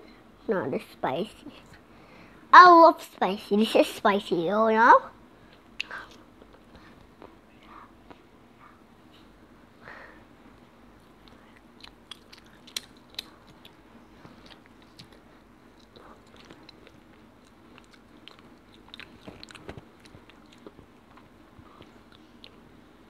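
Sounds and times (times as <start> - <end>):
child chewing crunchy food: 11.1 - 22.8.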